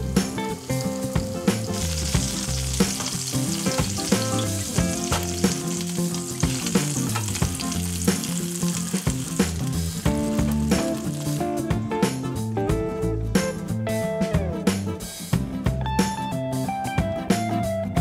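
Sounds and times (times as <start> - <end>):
mushrooms sizzling in a frying pan: 0.0 - 11.4
light background music: 0.0 - 18.0.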